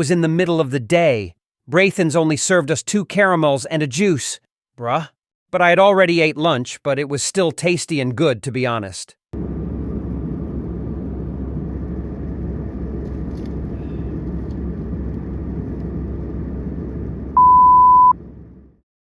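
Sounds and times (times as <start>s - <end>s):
airliner cabin rumble: 9.4s - 18.8s
loud steady beep: 17.4s - 18.2s.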